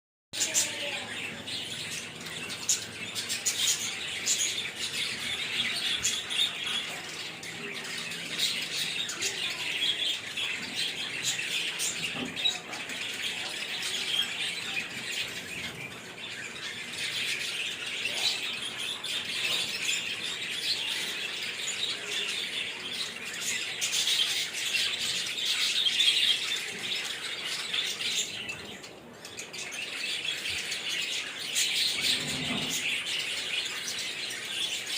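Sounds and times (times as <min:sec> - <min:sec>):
lovebirds chirping and squawking: 0:00.4 - 0:34.9.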